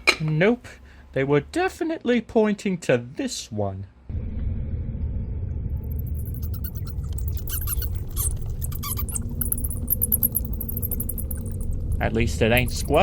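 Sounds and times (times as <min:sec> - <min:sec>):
low rushing rumble: 0:04.1 - 0:13.0
bats squeaking and chirping: 0:05.9 - 0:13.0.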